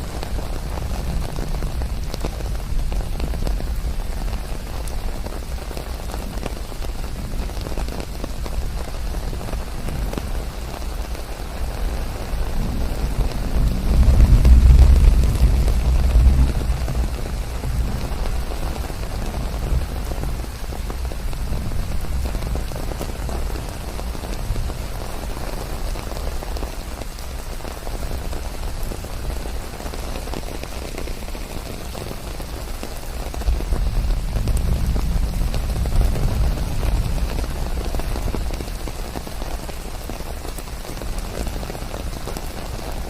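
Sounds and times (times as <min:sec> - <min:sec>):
rain falling: 0:00.0 - 0:43.0
white noise hiss: 0:00.0 - 0:43.0
low rumble: 0:12.8 - 0:18.4.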